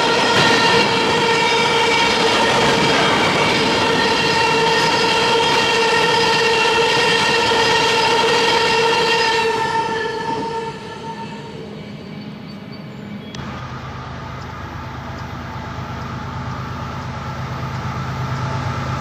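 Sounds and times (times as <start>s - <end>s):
locomotive air horn: 0.0s - 11.8s
moving train: 0.0s - 19.0s.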